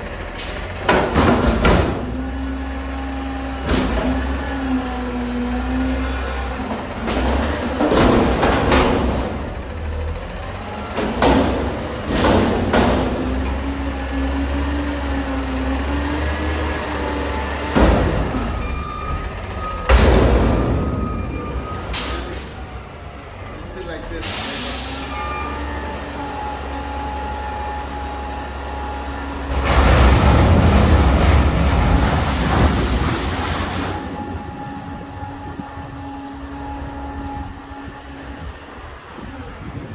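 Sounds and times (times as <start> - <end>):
garbage truck engine running: 0.0 - 39.9
hissing or clattering bursts: 29.5 - 34.1.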